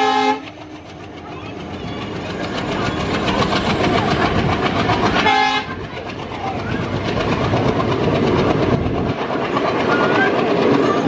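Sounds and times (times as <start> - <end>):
train horn blast: 0.0 - 0.5, 5.2 - 5.7
train wheels rumbling on rails: 0.0 - 11.0.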